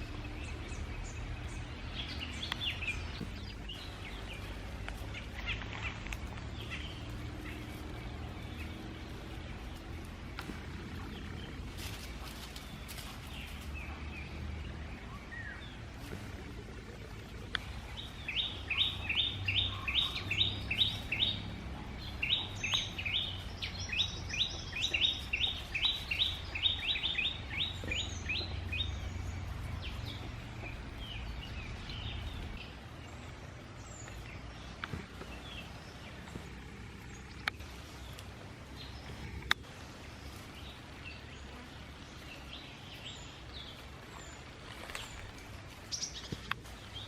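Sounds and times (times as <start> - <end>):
steady low rumble: 0.0 - 47.0
high bird chirps: 18.0 - 32.6.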